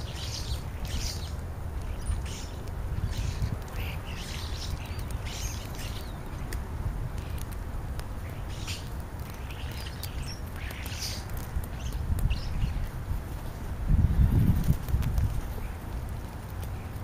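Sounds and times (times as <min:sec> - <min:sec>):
starlings calling: 0:00.0 - 0:06.5, 0:08.2 - 0:13.0.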